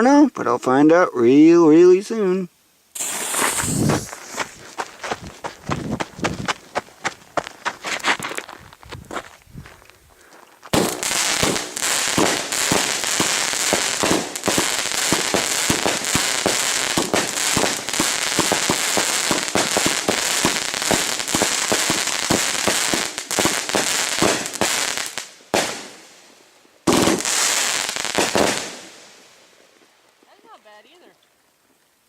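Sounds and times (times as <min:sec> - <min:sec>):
fireworks shots and crackles: 0:03.0 - 0:04.4, 0:10.7 - 0:26.1, 0:26.9 - 0:29.2.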